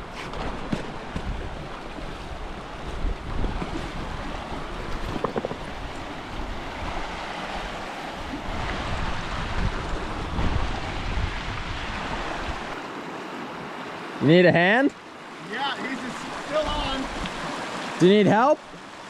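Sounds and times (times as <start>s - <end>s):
river water rushing: 0.4s - 19.0s
wind gusting on microphone: 1.0s - 12.8s.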